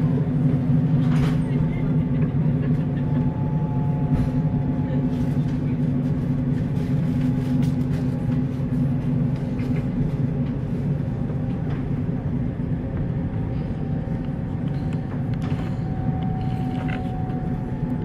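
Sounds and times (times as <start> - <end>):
low hum: 0.0 - 18.0
train wheels rumbling on rails: 0.0 - 18.0.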